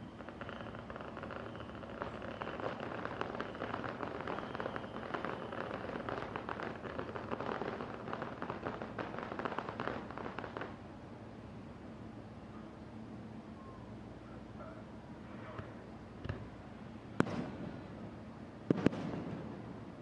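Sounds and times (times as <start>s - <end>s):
fireworks crackling: 0.0s - 10.9s, 17.2s - 20.0s.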